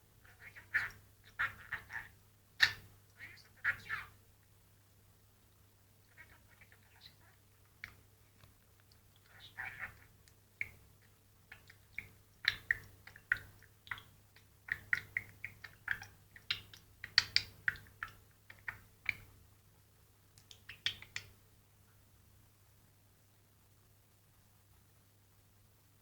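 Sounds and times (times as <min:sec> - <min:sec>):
budgerigar chattering: 0:00.2 - 0:04.2, 0:09.3 - 0:10.1.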